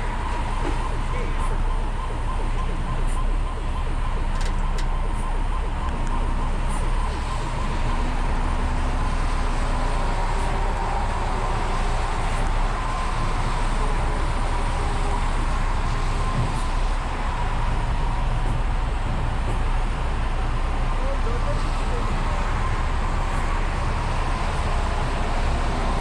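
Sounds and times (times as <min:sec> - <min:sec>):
large vehicle engine rumbling: 0:00.0 - 0:26.0
steady engine whine: 0:00.0 - 0:26.0.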